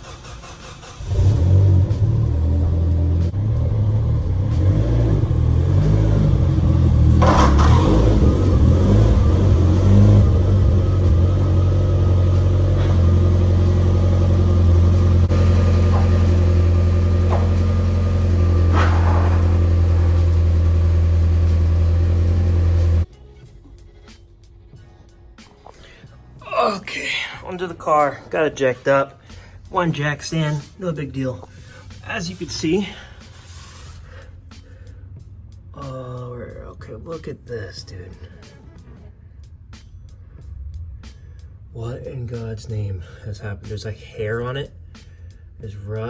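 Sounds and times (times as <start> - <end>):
car engine revving and idling: 0.0 - 23.1.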